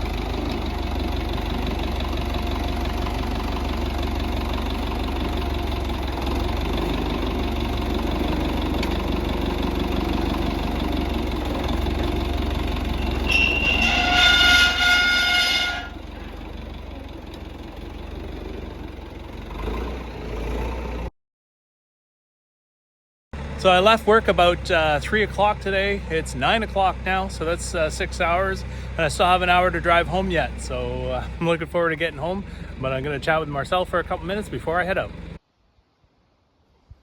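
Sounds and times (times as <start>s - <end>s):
tractor engine running: 0.0s - 21.1s, 23.4s - 35.4s
high-pitched tone: 13.0s - 16.0s.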